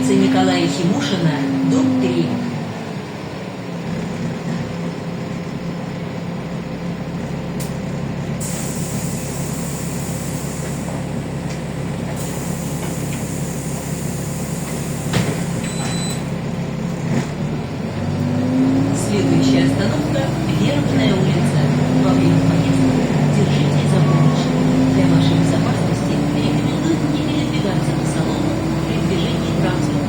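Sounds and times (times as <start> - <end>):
bus engine hum: 0.0 - 30.0
road noise: 0.0 - 30.0
air hiss: 8.4 - 11.0, 12.2 - 15.2.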